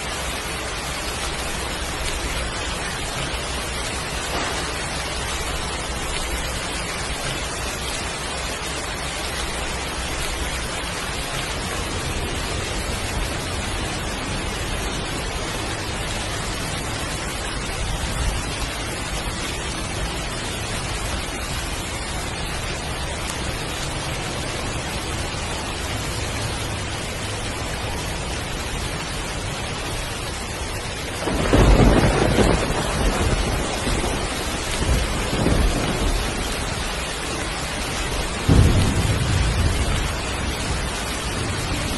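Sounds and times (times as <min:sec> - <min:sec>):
thunder rumbling: 0:00.0 - 0:29.2, 0:31.0 - 0:41.9
heavy rain: 0:00.0 - 0:41.9
loud thunderclap: 0:03.2 - 0:06.3, 0:31.2 - 0:37.0, 0:38.2 - 0:41.9.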